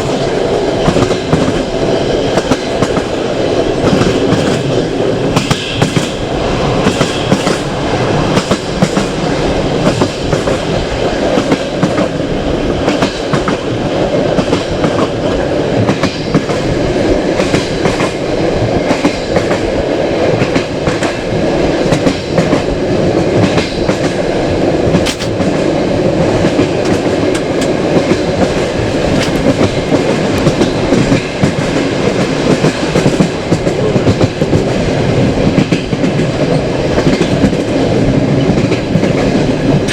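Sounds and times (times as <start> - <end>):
train coach rumbling: 0.0 - 39.9
wheels clicking on rails: 17.4 - 39.9.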